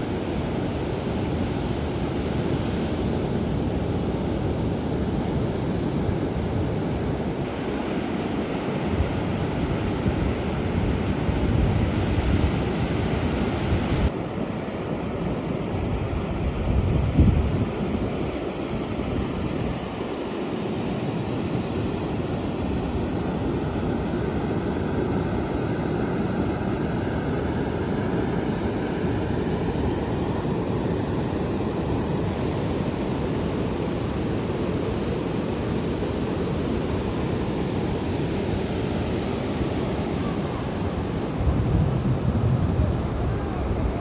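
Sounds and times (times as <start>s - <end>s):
ocean surf rushing: 6.3s - 44.0s
wind buffeting the microphone: 8.6s - 14.1s, 15.4s - 20.2s, 38.8s - 44.0s.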